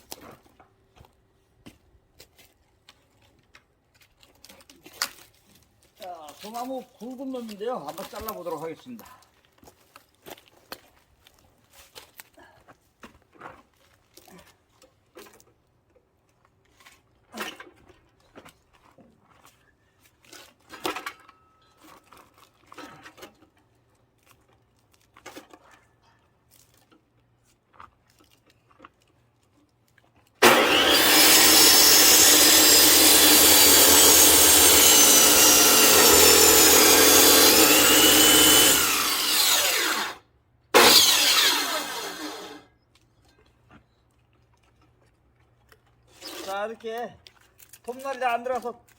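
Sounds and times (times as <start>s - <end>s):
power saw cutting log: 30.4s - 40.2s, 40.8s - 42.6s, 46.2s - 46.6s.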